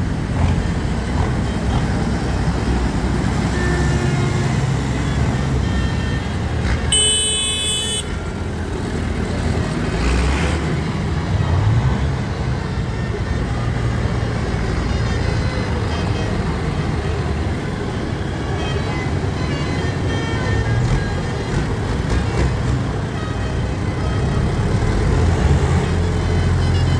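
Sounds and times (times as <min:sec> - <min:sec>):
tractor engines rumbling: 0:00.0 - 0:26.9
horn blast: 0:06.9 - 0:08.2.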